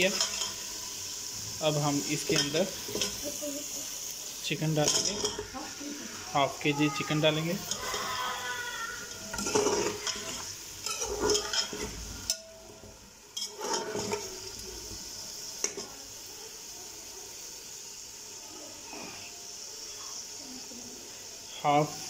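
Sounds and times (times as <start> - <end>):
chicken sizzling in hot oil: 0.0 - 22.0
ladle scraping a metal pot: 9.1 - 12.5, 13.4 - 14.5.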